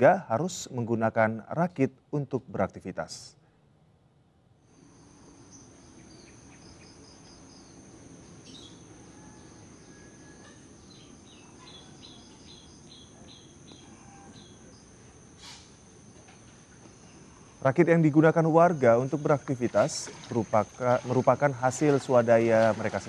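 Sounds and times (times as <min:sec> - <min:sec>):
steady high whine: 0:04.6 - 0:23.0
small bird chirping: 0:05.2 - 0:15.7.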